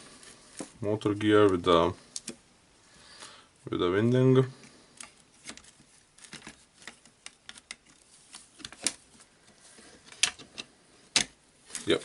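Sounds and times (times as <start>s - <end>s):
plastic parts clicking: 5.0s - 9.0s, 10.0s - 12.0s.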